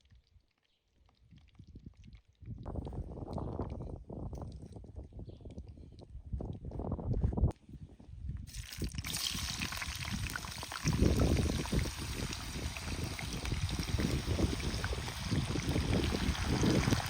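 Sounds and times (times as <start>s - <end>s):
water running: 8.5s - 17.0s.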